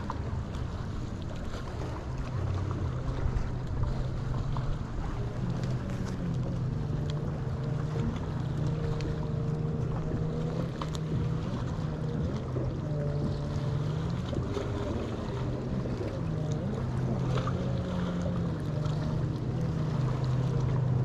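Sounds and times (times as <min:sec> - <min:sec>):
boat motor humming: 0:00.0 - 0:21.0.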